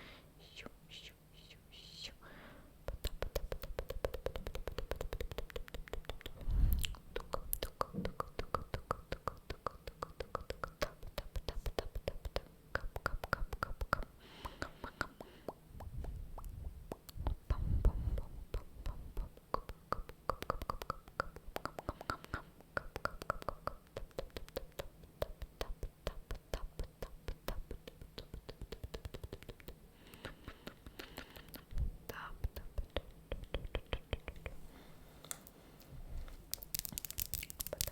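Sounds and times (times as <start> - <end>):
whispered breaths: 0.0 - 2.8, 29.9 - 32.8
wet tongue and lip clicks: 2.9 - 34.6, 36.5 - 37.9.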